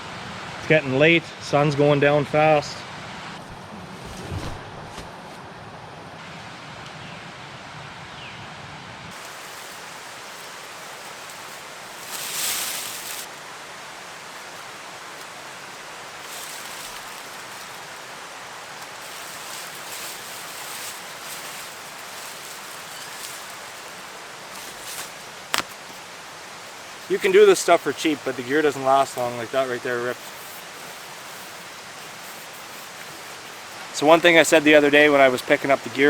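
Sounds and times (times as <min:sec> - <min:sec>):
steady outdoor hiss: 0:00.0 - 0:36.0
rustling and handling: 0:09.1 - 0:34.6.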